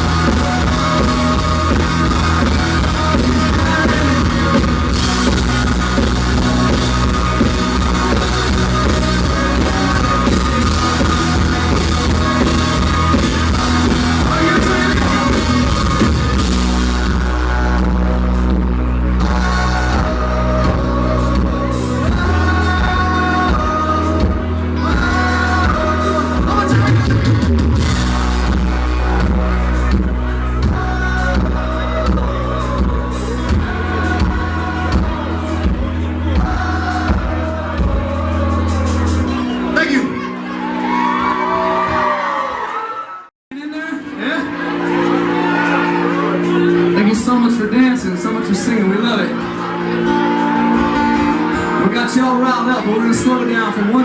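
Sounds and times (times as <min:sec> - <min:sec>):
heavy held bass: 0:00.0 - 0:40.5
person singing: 0:00.0 - 0:42.2
drum kit: 0:00.0 - 0:42.3
live country rock band: 0:00.0 - 0:43.2, 0:43.8 - 0:54.0.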